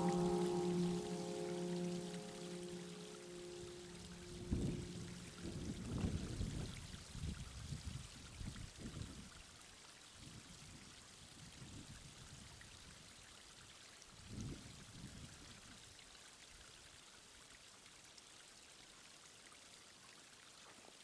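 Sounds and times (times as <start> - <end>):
waterfall rushing: 0.0 - 5.7.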